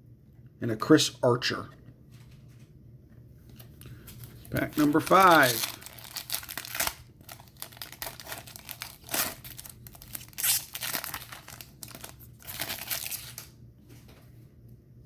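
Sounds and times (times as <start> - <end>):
foil wrapper tearing and crinkling: 3.6 - 13.5.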